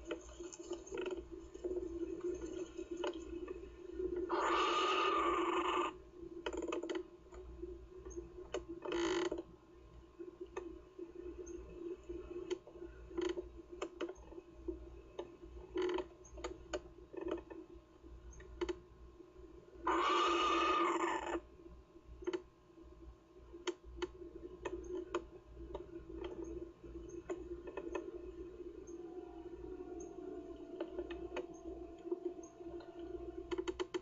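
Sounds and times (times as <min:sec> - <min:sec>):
clicks and creaks: 0:00.0 - 0:09.5, 0:10.2 - 0:18.9, 0:19.9 - 0:21.5, 0:22.2 - 0:22.5, 0:23.5 - 0:34.0
steady low hum: 0:09.4 - 0:34.0.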